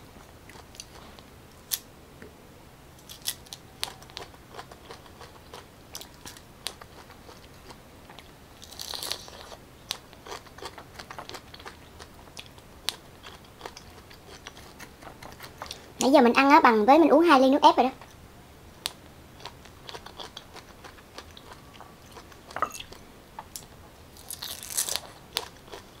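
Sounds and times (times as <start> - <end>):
pineapple being chewed: 3.0 - 16.0, 18.8 - 26.0.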